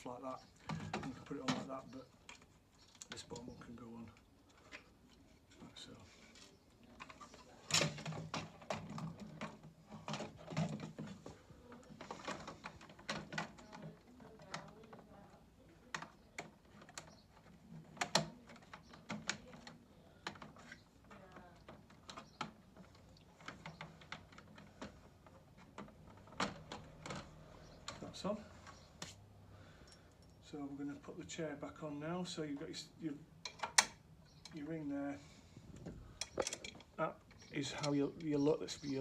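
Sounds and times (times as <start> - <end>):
plastic panels clicking and knocking: 0.6 - 2.4, 7.0 - 29.1, 33.4 - 34.6, 35.8 - 38.3.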